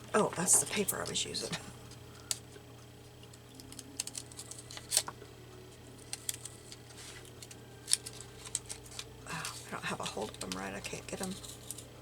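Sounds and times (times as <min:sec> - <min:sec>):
paper rustling: 0:03.5 - 0:05.2, 0:06.0 - 0:11.9
scissors clicking: 0:03.6 - 0:04.4.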